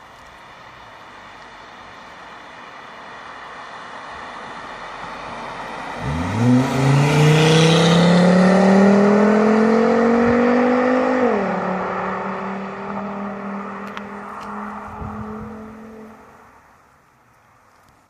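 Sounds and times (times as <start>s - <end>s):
car engine accelerating: 5.0s - 16.4s.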